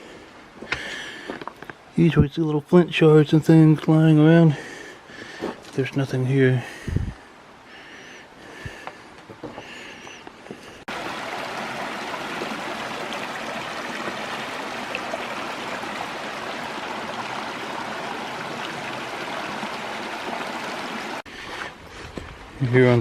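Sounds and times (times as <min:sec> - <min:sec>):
creek water rushing and splashing: 0:10.9 - 0:21.3.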